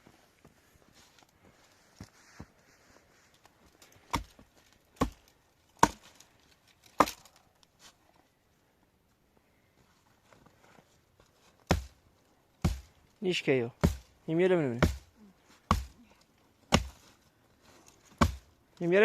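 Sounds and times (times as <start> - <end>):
wood chopping strikes: 4.0 - 6.1, 6.9 - 7.4, 11.7 - 12.0, 12.6 - 13.0, 13.8 - 14.2, 14.8 - 15.1, 15.7 - 16.0, 16.7 - 17.0, 18.1 - 18.5.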